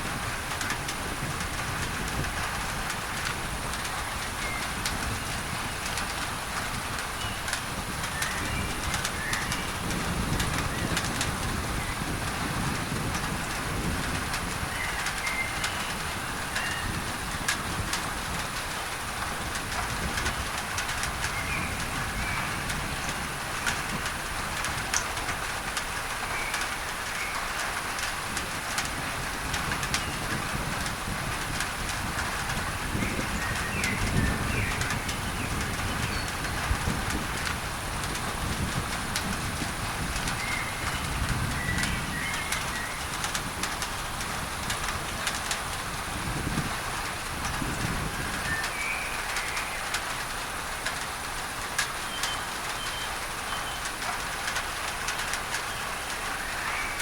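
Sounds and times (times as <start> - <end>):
rain on a tin roof: 0.0 - 57.0
birds chirping: 40.4 - 43.1, 52.0 - 54.0, 54.7 - 57.0.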